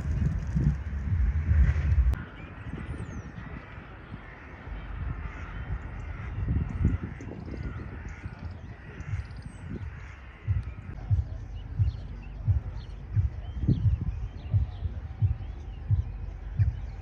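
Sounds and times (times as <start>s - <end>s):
low thumps: 0.0s - 2.2s, 6.4s - 17.0s
steady low rumble: 0.0s - 17.0s
crows cawing: 2.7s - 14.5s.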